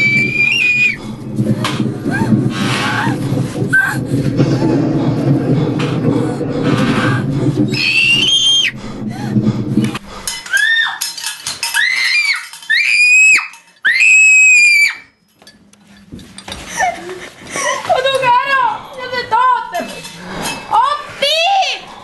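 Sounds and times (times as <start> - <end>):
high-pitched screams: 0.0 - 1.0, 7.7 - 8.8, 10.4 - 15.2
low drone: 0.0 - 10.5.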